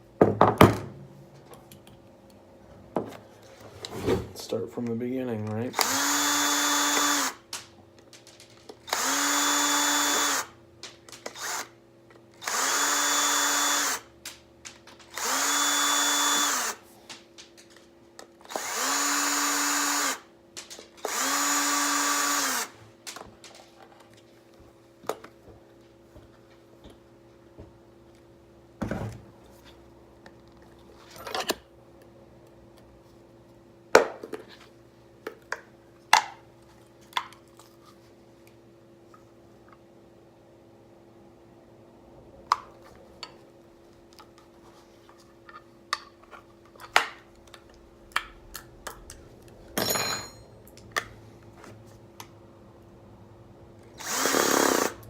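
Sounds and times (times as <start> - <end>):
electric drill-driver spinning: 5.7 - 7.6, 8.7 - 10.6, 11.2 - 11.8, 12.4 - 14.1, 15.1 - 16.8, 18.4 - 20.3, 21.0 - 22.8, 53.9 - 55.0.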